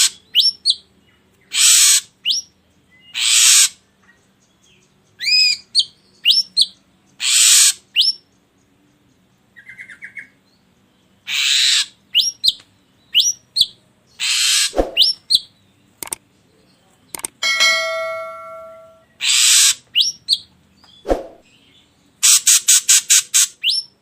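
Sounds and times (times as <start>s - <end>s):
bird harsh rasping notes: 11.3s - 12.0s, 14.2s - 15.3s, 17.2s - 19.8s
bird whistled notes: 14.3s - 15.4s.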